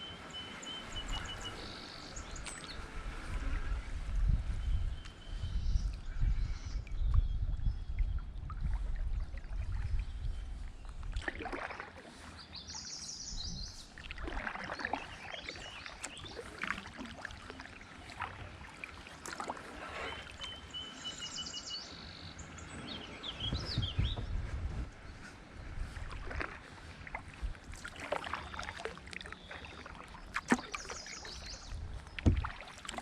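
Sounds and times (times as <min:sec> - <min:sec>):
kayak paddle splashing: 0:00.0 - 0:33.0
birds calling: 0:11.6 - 0:24.4, 0:25.0 - 0:33.0.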